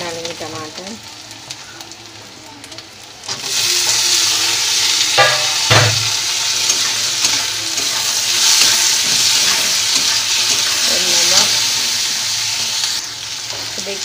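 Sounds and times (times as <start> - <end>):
vegetables sizzling in hot oil: 0.0 - 14.0
spatula knocking on metal pan: 5.2 - 6.1.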